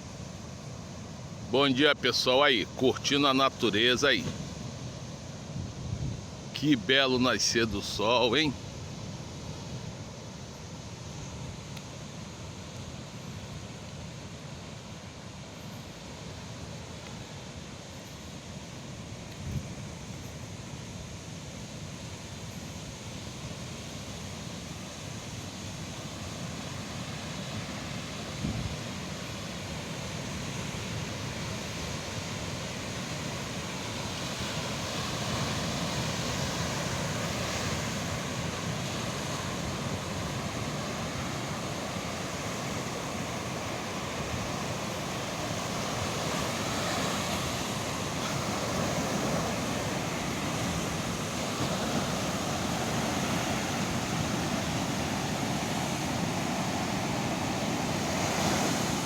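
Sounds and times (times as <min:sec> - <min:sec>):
ocean surf washing onto beach: 0:00.0 - 0:59.0
wind on microphone: 0:05.5 - 0:06.4.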